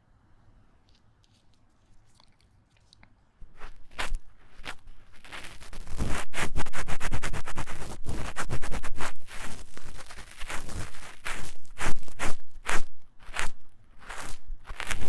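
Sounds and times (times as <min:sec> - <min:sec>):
tool scraping inside microphone ear: 0:03.5 - 0:15.0.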